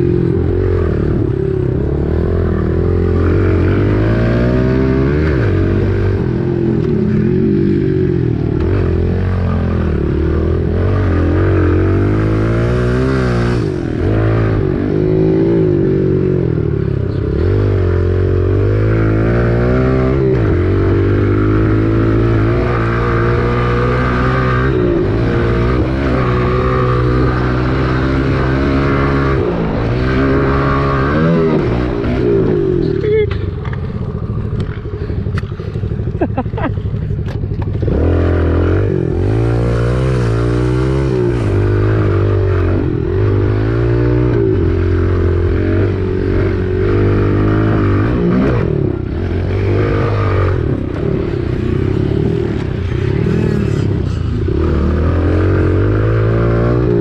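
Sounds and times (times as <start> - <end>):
dirt bike engine revving: 0.0 - 36.7, 37.6 - 57.0.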